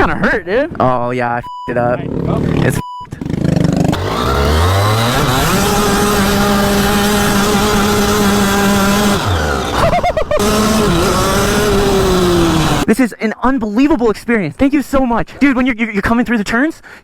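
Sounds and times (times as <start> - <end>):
go-kart engine revving: 2.0 - 12.9.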